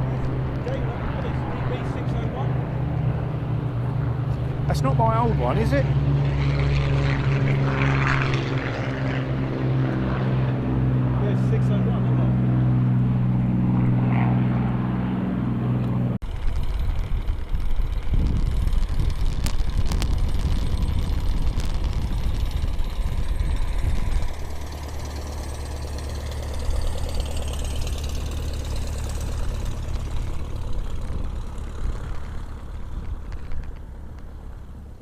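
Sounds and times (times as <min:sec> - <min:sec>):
uneven low rumble: 0:12.5 - 0:35.0
engine idling: 0:15.8 - 0:35.0.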